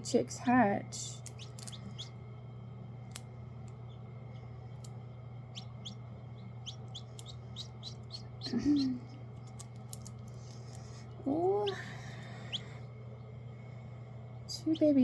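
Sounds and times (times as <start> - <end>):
steady low hum: 0.0 - 15.0
chicks peeping: 1.2 - 2.2, 5.5 - 9.8, 10.6 - 13.2.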